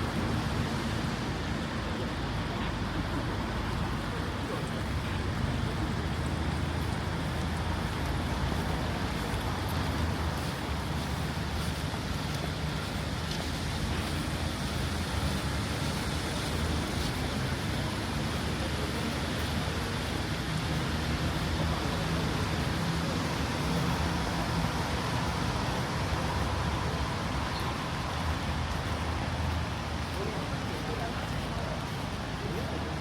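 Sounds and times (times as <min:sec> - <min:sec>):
rain hiss on street: 0:00.0 - 0:33.0
traffic rumble: 0:00.0 - 0:33.0.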